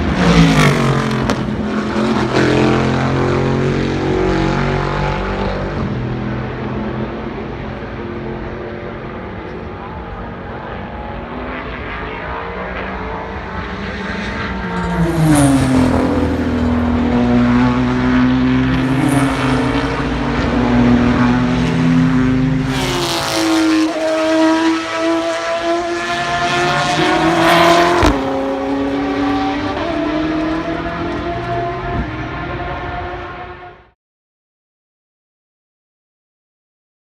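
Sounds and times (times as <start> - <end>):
race car engines passing: 0.0 - 34.0.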